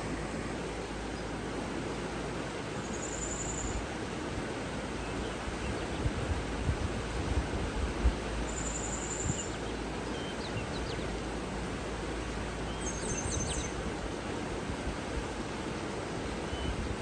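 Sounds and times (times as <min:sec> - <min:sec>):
flowing water rushing: 0:00.0 - 0:17.0
songbirds calling: 0:02.8 - 0:03.8, 0:08.3 - 0:11.4, 0:12.1 - 0:14.0, 0:15.5 - 0:17.0.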